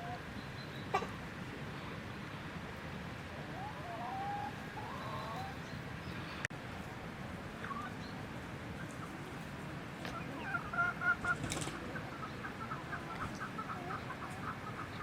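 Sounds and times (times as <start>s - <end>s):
chickens clucking: 0.0s - 0.3s, 3.3s - 5.7s, 7.5s - 15.0s
low background noise: 0.0s - 15.0s.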